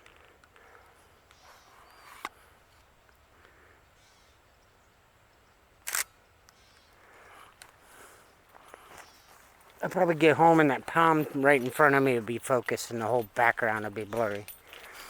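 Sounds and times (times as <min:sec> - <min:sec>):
faint outdoor ambience: 0:00.0 - 0:15.0
camera shutter clicking: 0:05.8 - 0:06.1.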